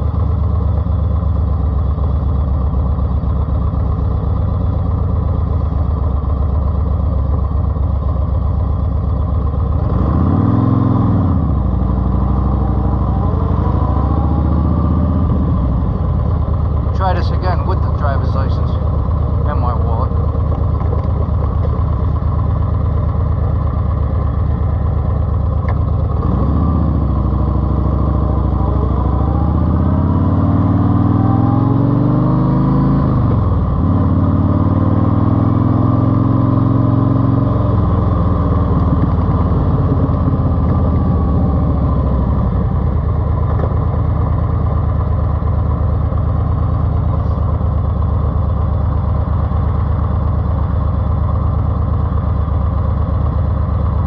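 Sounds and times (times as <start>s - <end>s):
car engine accelerating: 9.8s - 16.2s, 25.6s - 44.1s.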